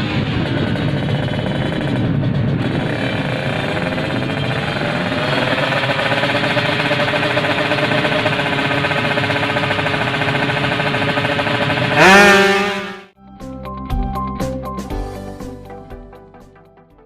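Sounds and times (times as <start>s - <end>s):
motorcycle engine idling and revving: 0.0s - 13.1s
music: 13.1s - 17.0s.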